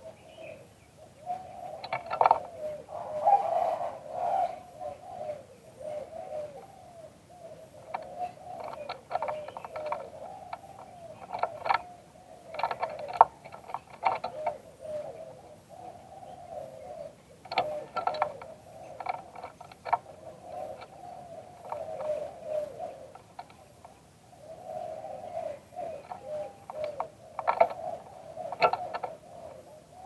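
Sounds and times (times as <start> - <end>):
dove cooing: 0.0 - 30.0
sharp clicks: 1.8 - 2.5, 7.9 - 11.9, 12.5 - 14.6, 17.4 - 21.0, 23.1 - 24.0, 26.0 - 29.2.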